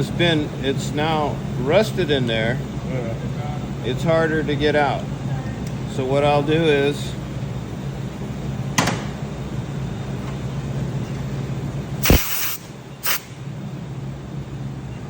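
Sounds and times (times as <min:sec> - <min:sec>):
low mechanical hum: 0:00.0 - 0:15.0
hissing bursts: 0:12.0 - 0:13.4.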